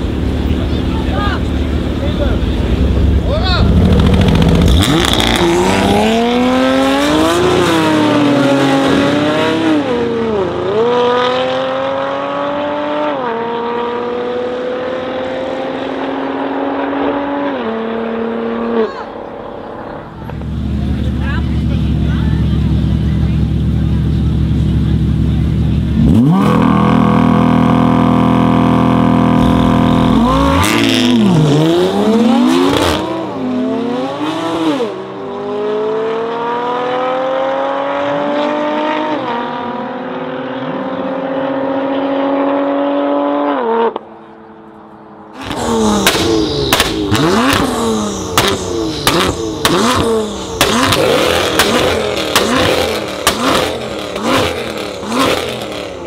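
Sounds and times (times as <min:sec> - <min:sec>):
car engine revving: 0:00.0 - 0:44.2, 0:44.8 - 0:56.0
cars launching and upshifting: 0:00.0 - 0:56.0
exhaust pops and bangs: 0:45.4 - 0:54.6.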